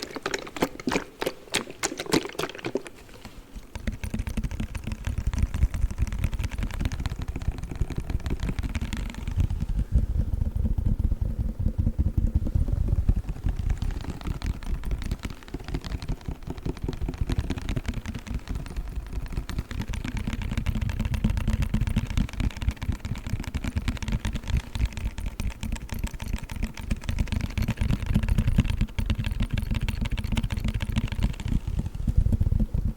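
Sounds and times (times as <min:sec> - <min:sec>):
cold pack tapping and squishing: 0:00.0 - 0:09.6.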